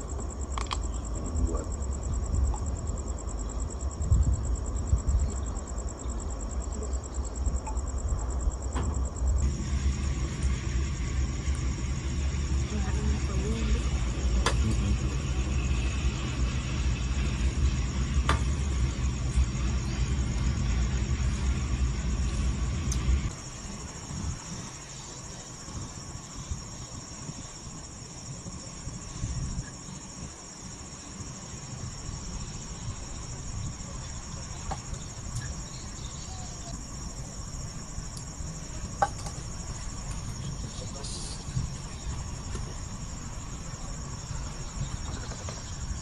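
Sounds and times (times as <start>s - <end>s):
crickets trilling: 0.0s - 46.0s
heavy low rumble: 7.5s - 24.7s.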